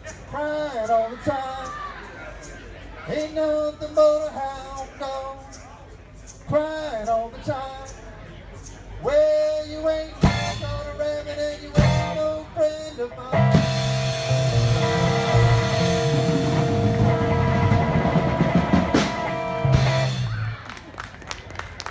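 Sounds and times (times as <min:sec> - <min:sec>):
live rock band playing: 0:10.2 - 0:10.8, 0:11.8 - 0:12.4, 0:13.3 - 0:20.7
drum roll and cymbal wash: 0:13.6 - 0:20.4.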